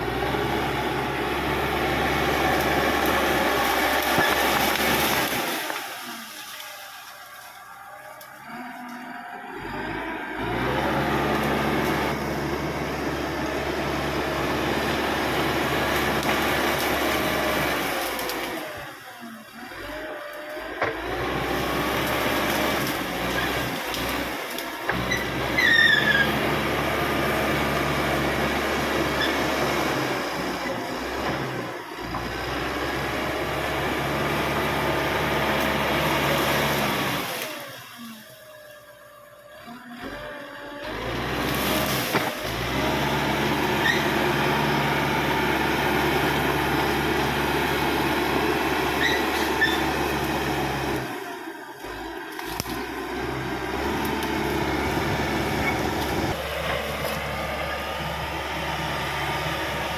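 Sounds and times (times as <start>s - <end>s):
bulldozer diesel engine running: 0.0s - 59.9s
short high squeal: 25.1s - 26.4s, 49.0s - 49.9s.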